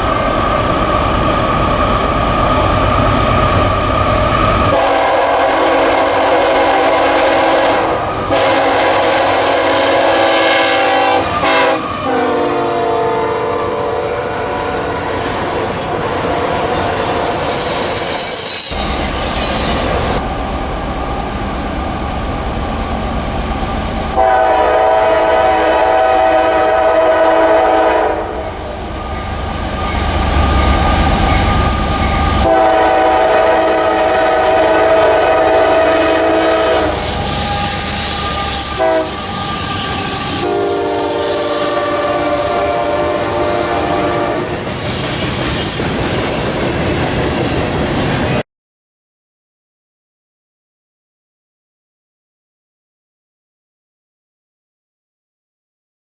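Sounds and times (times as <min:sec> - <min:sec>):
locomotive air horns: 0:04.6 - 0:20.2, 0:24.1 - 0:29.2, 0:31.6 - 0:46.0
train wheels clattering on rails: 0:29.0 - 0:40.5, 0:41.2 - 0:48.4.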